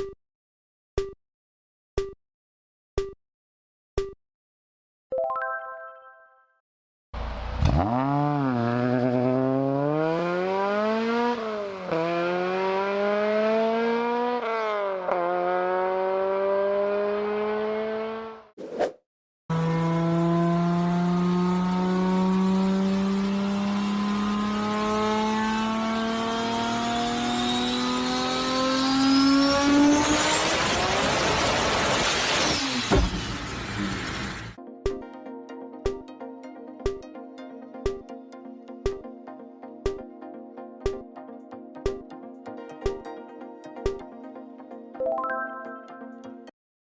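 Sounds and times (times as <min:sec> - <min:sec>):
car engine revving: 0:07.2 - 0:18.5, 0:19.5 - 0:34.6.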